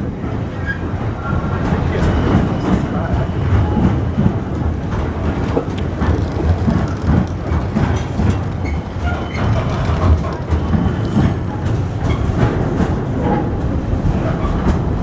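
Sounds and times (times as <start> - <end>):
steel wheels rumbling on rails: 0.0 - 15.0
wheelsets clicking and clattering: 3.8 - 15.0.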